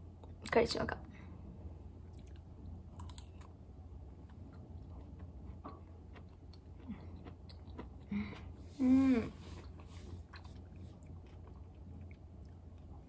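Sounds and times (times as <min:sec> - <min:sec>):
person humming mm: 0:08.1 - 0:09.6.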